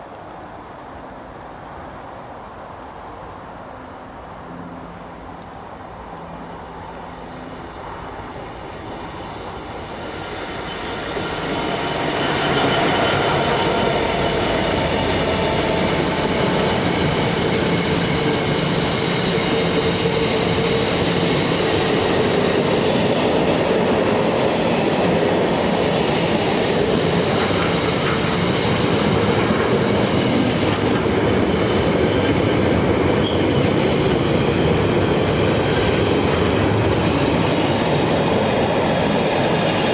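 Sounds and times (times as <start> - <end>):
train passing: 0.0 - 39.9.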